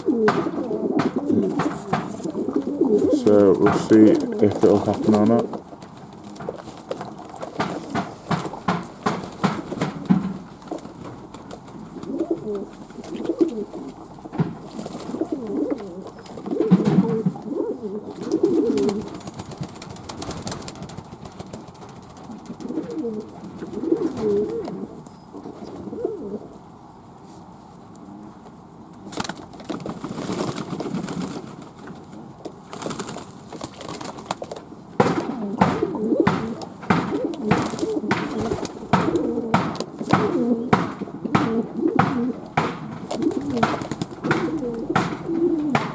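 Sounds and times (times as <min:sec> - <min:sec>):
sharp taps: 0:00.0 - 0:05.5, 0:07.5 - 0:10.6, 0:35.0 - 0:45.9
doves cooing: 0:00.0 - 0:26.8, 0:33.9 - 0:45.9.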